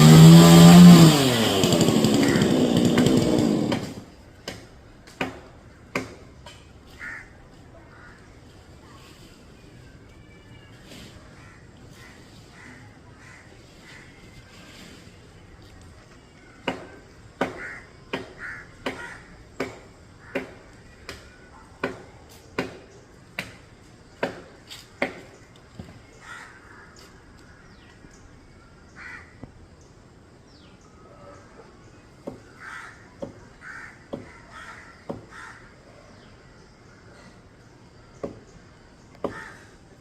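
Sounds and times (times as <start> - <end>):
crows cawing: 2.2 - 2.6, 6.9 - 8.3, 11.4 - 14.2, 17.4 - 19.4, 20.2 - 20.7, 26.2 - 27.7, 29.0 - 29.4, 32.3 - 35.8, 39.2 - 39.8.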